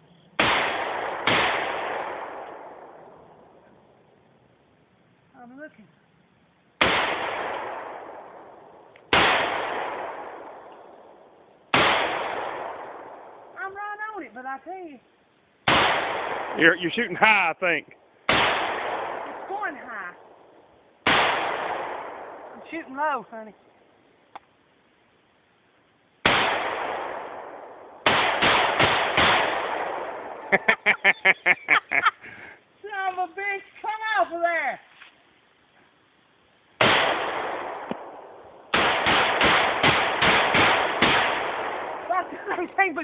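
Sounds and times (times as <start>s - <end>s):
rifle shots with echo: 0.4s - 3.6s, 6.8s - 13.6s, 15.6s - 17.4s, 18.3s - 23.1s, 26.2s - 30.6s, 36.8s - 42.8s.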